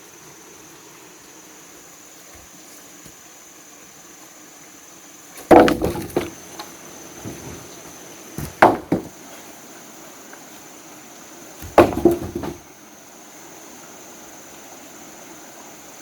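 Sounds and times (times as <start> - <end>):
high insect drone: 0.0 - 16.0
wood knocking together: 5.4 - 7.8, 8.4 - 9.2, 11.6 - 12.7.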